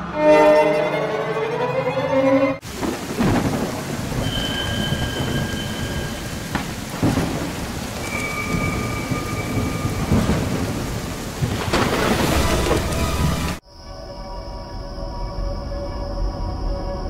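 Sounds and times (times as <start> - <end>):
heavy rain pouring: 2.6 - 13.6
thunder rumbling and cracking: 2.6 - 13.6
faint whistling tones: 4.2 - 6.6, 8.0 - 10.6.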